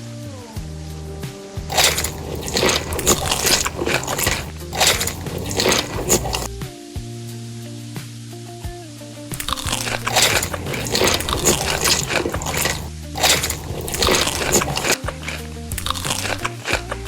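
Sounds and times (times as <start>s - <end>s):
crunching and biting crisp food: 1.7s - 6.5s, 9.4s - 17.0s.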